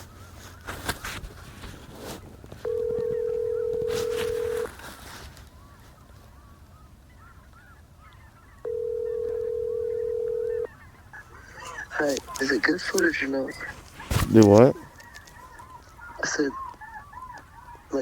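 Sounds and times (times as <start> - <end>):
snow geese calling: 0.0 - 18.0.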